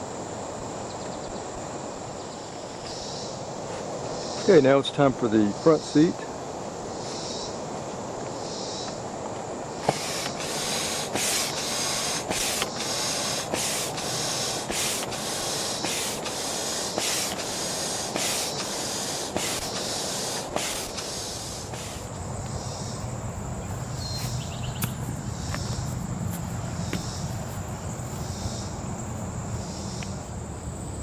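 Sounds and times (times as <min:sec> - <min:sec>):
hand air pump hissing: 0:09.8 - 0:23.0.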